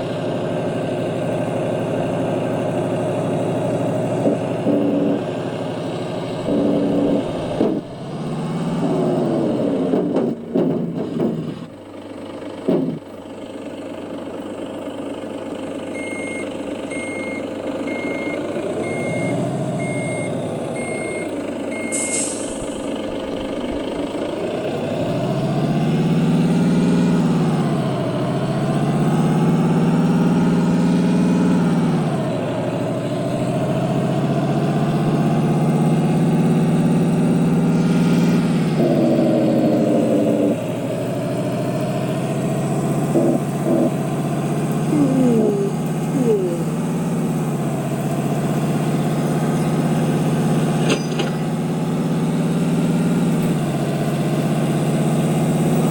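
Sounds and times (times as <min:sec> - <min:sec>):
diesel truck engine revving: 0:00.0 - 0:55.9
reversing beeps: 0:16.0 - 0:22.3
air brake hiss: 0:21.9 - 0:22.8.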